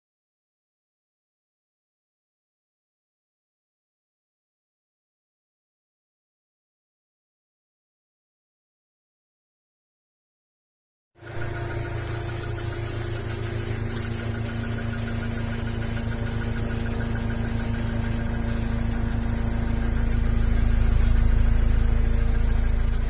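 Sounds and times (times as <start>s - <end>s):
car engine idling: 11.2s - 23.0s.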